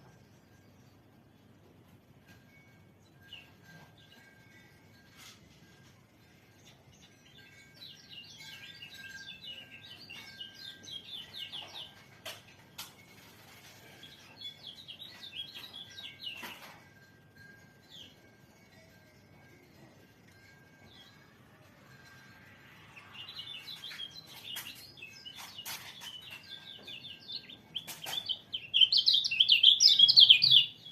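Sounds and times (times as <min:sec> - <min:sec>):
bird twittering song: 0:06.5 - 0:12.4, 0:13.8 - 0:16.7, 0:23.0 - 0:30.9.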